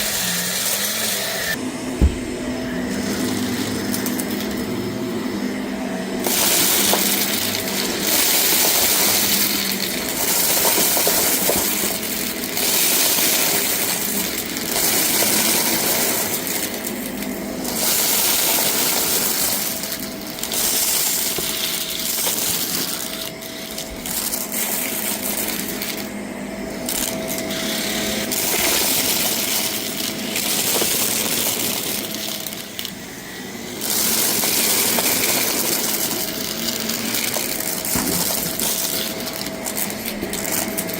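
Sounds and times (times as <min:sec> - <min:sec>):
vacuum cleaner running: 0:00.0 - 0:40.9
debris rattling through vacuum: 0:01.9 - 0:04.7, 0:26.7 - 0:32.9, 0:33.8 - 0:40.9.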